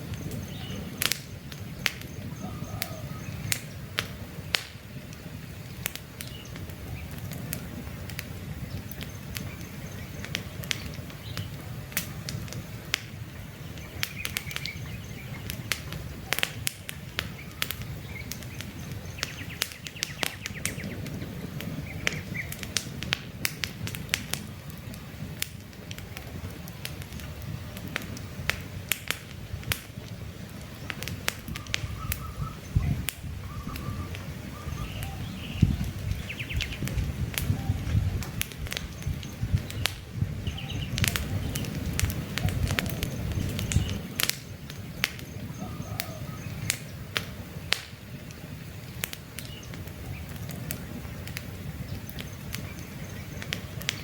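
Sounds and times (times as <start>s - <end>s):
campfire crackling and popping: 0.0s - 54.0s
faint bird chirps: 1.8s - 3.7s, 31.5s - 36.9s, 45.2s - 46.9s.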